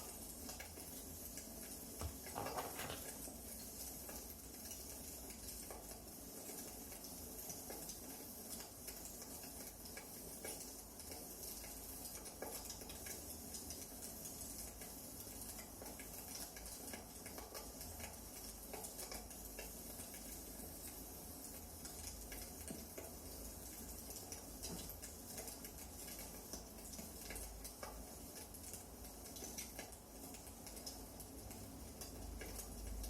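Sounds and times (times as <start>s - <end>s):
wood fire crackling: 0.0s - 11.5s.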